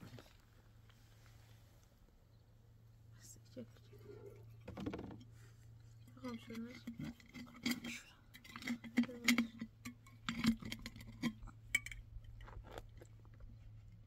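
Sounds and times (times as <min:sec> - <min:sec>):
steady low hum: 0:00.0 - 0:14.0
light clinks and taps: 0:04.0 - 0:14.0.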